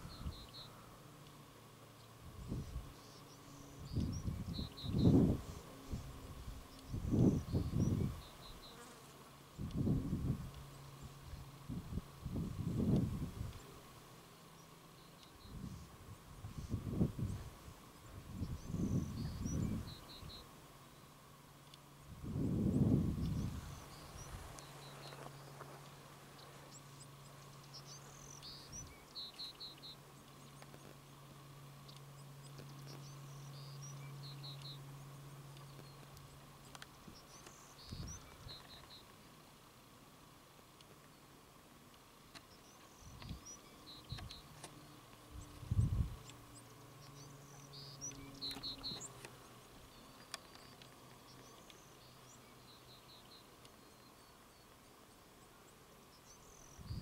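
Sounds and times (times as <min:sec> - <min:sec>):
faint birdsong chirps: 0:00.0 - 0:57.0
steady low hum: 0:00.0 - 0:57.0
faint clicks: 0:21.6 - 0:21.9, 0:35.5 - 0:39.2, 0:47.5 - 0:52.2.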